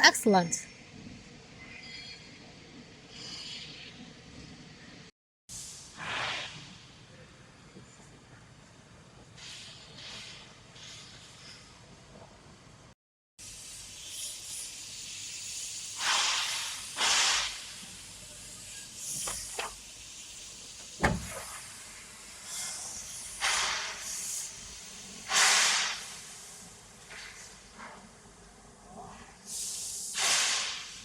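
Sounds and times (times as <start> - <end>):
sharp knock: 20.8 - 21.4.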